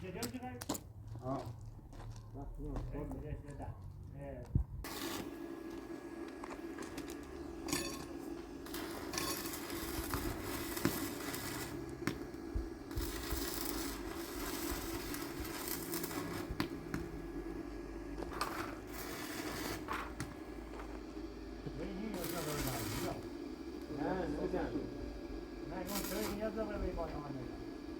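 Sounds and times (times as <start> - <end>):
steady low hum: 0.0 - 27.9
metal scraping and clinking: 6.8 - 11.8.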